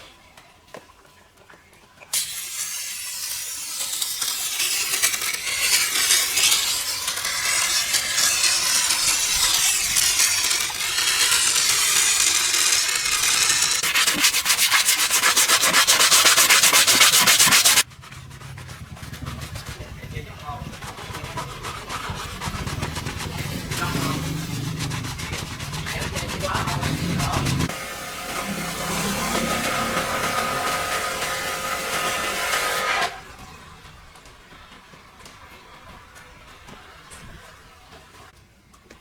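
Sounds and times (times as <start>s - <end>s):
stiff brush scrubbing: 3.6s - 32.8s.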